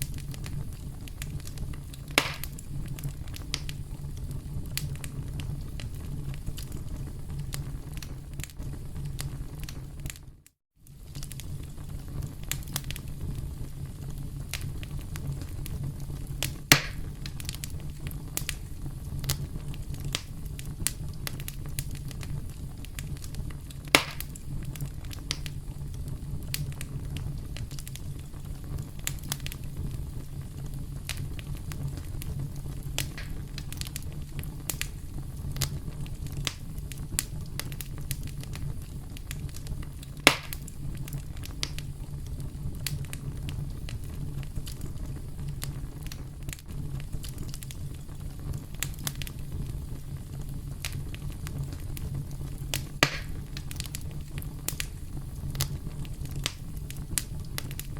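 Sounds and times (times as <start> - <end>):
campfire crackling: 0.0 - 57.9
wood popping loudly: 2.1 - 2.6, 16.7 - 17.0, 23.9 - 24.3, 33.0 - 33.4, 53.0 - 53.4.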